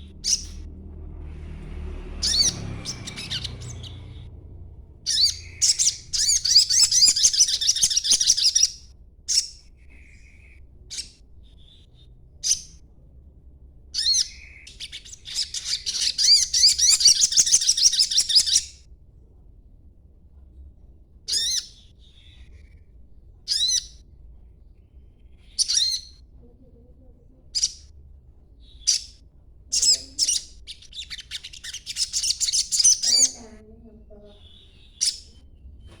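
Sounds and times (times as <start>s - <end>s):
sharp bird chirps: 0.0s - 0.7s, 2.2s - 4.3s, 5.1s - 12.8s, 14.0s - 18.8s, 28.6s - 33.4s
songbird twittering: 0.0s - 0.7s, 2.2s - 4.4s, 5.1s - 12.8s, 14.0s - 18.8s, 21.3s - 22.8s, 23.5s - 24.0s, 25.3s - 26.2s, 28.6s - 33.5s, 34.3s - 36.0s.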